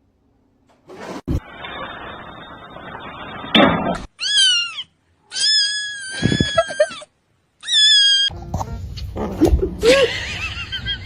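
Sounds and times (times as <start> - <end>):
cat meowing: 4.2 - 7.0.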